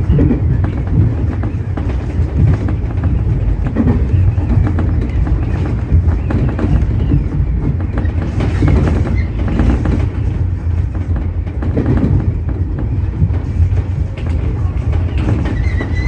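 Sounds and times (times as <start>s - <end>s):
electric train rumbling: 0.0s - 16.0s
wheels clacking over rail joints: 0.0s - 16.0s.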